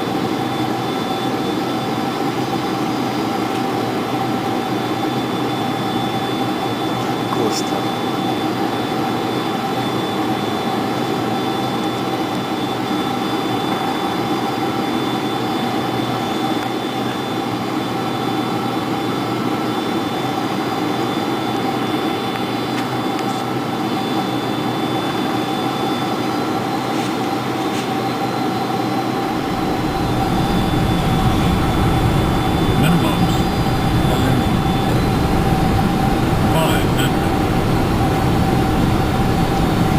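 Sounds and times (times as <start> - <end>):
jet engines and airflow rushing: 0.0 - 39.9
steady whining tones: 0.0 - 39.9
deep low rumble: 29.4 - 38.1.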